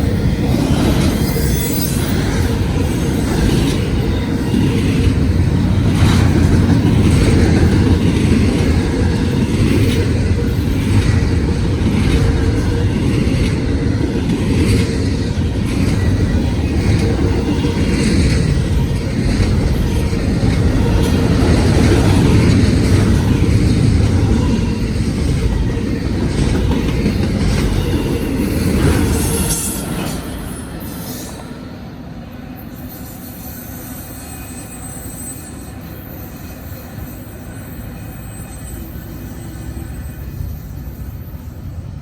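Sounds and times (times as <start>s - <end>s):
train wheel clacks: 0.0s - 31.3s
freight train rumbling: 0.0s - 42.0s.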